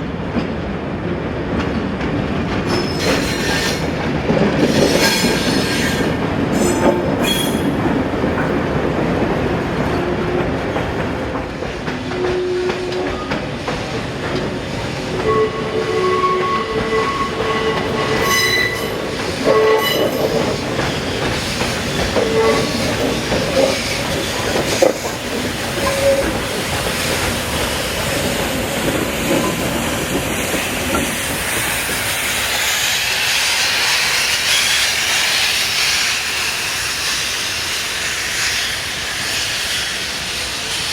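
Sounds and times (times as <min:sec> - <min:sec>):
train rumble and clatter: 0:00.0 - 0:40.9
train wheels squealing on rails: 0:02.6 - 0:07.9, 0:12.0 - 0:14.0, 0:14.8 - 0:40.9
hiss: 0:20.0 - 0:40.9.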